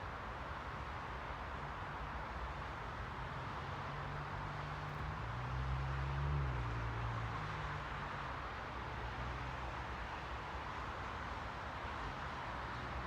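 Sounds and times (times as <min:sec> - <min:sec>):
vehicle engine hum passing: 0:03.4 - 0:10.2.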